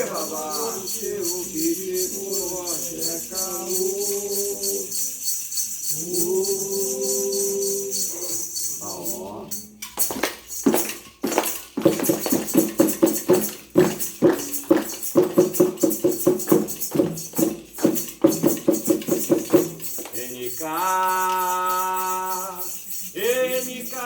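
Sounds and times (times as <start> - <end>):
person singing: 0.0 - 9.8, 20.2 - 24.0
fast percussion: 0.0 - 24.0
shaken jingles and rattles: 0.0 - 24.0.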